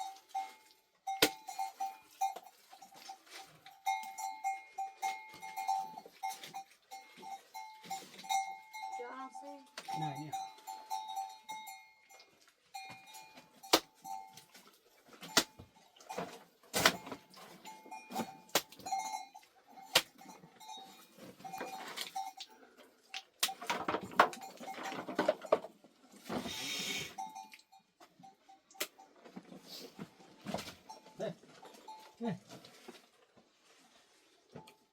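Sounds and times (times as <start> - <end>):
metal livestock bells ringing: 0.0 - 14.5, 17.0 - 22.7, 23.5 - 25.6, 27.1 - 29.1, 30.8 - 32.3.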